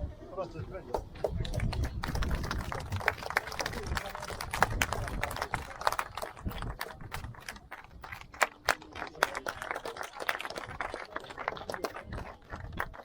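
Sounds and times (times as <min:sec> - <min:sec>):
scattered hand clapping: 0:00.9 - 0:13.0.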